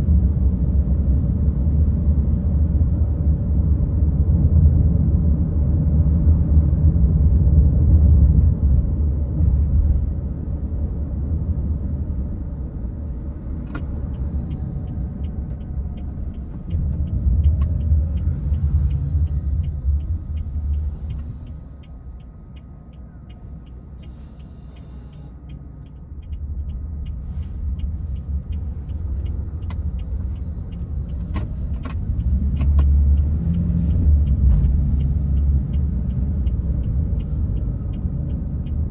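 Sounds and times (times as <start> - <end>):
car engine and road rumble: 0.0 - 38.9
turn signal ticking: 13.1 - 38.9.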